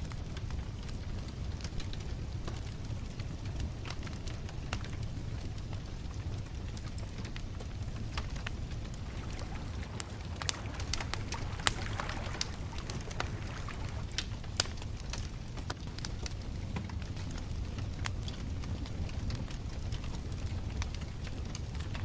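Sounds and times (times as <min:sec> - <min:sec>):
sharp pops and snaps: 0:09.0 - 0:14.2
wood bonfire crackling: 0:09.0 - 0:14.4
low rumble of flames: 0:09.0 - 0:14.5.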